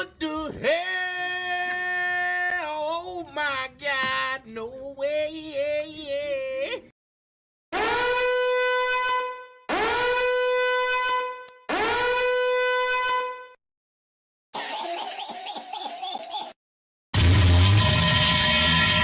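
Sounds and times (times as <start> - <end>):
brassy horn blasts: 7.8 - 13.6, 17.2 - 19.0.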